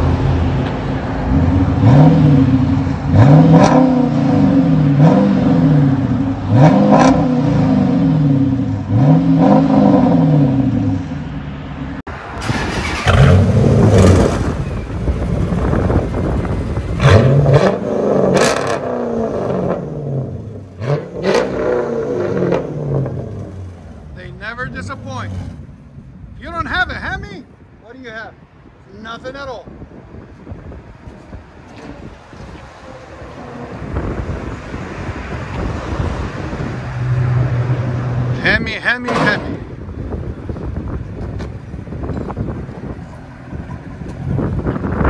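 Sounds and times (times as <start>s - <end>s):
second car engine revving: 0.0s - 11.2s, 12.4s - 26.2s
car engine revving: 1.1s - 11.2s, 12.3s - 26.1s.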